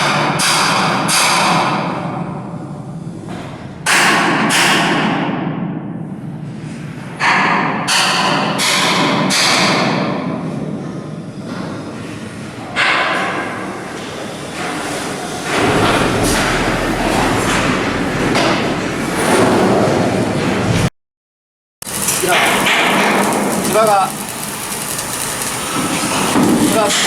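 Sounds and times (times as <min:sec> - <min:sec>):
hammer strikes on steel: 0:07.2 - 0:10.1.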